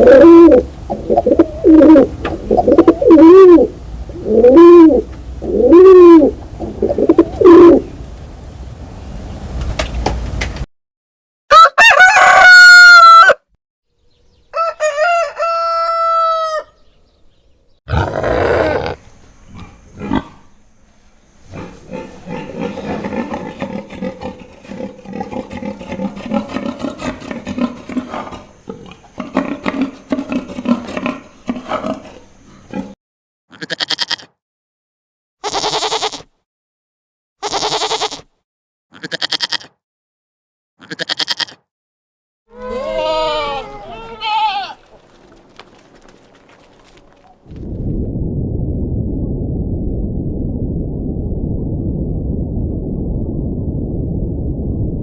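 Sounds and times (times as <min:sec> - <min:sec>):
rough animal calls: 0:00.0 - 0:07.9, 0:17.9 - 0:20.6, 0:42.5 - 0:47.6
rooster crowing: 0:11.5 - 0:13.4, 0:14.5 - 0:16.8.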